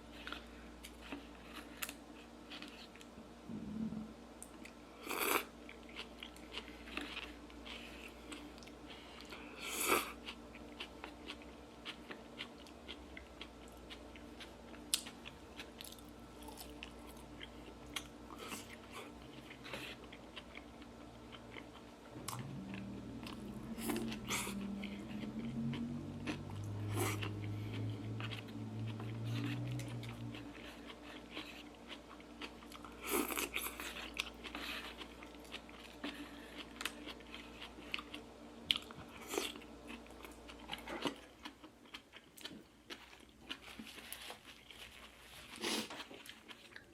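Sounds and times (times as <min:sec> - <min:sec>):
low wavering hum: 0:03.4 - 0:04.2, 0:22.0 - 0:30.8
chewing and biting food: 0:04.4 - 0:46.9.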